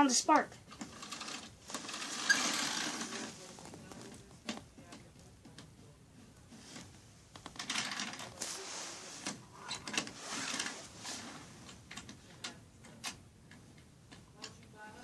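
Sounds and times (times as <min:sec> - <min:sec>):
model train parts clicking and rattling: 0:07.4 - 0:08.3.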